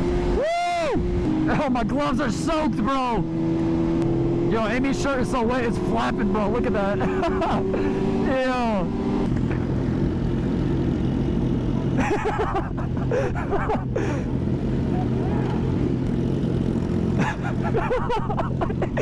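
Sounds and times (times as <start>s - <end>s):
motorcycle engine cruising: 0.0s - 19.0s
voices: 4.4s - 8.9s, 14.8s - 15.8s.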